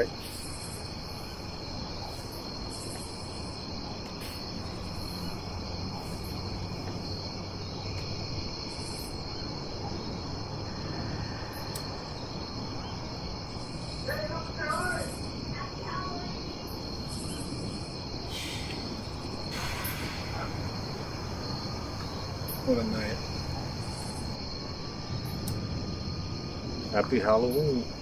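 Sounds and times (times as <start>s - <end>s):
crickets chirping: 0.0s - 28.0s
low background rumble: 0.5s - 28.0s.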